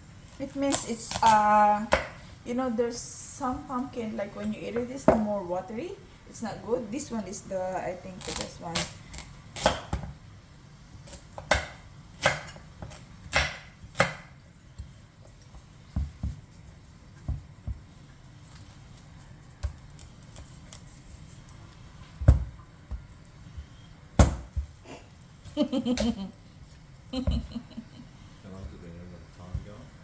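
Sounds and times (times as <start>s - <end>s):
knife chopping on a cutting board: 9.6s - 10.2s, 11.0s - 16.4s, 24.2s - 24.7s.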